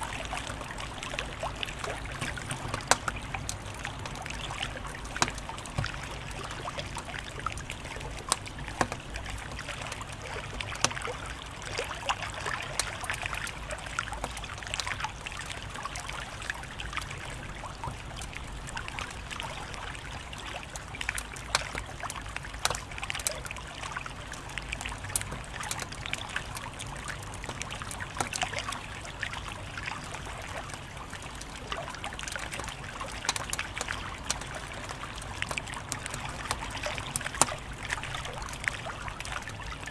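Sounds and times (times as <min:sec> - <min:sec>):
wood fire crackling: 0:00.0 - 0:15.8, 0:16.4 - 0:39.9
fire pops and snaps: 0:00.2 - 0:10.1, 0:21.2 - 0:23.4, 0:25.0 - 0:28.5, 0:32.2 - 0:38.6.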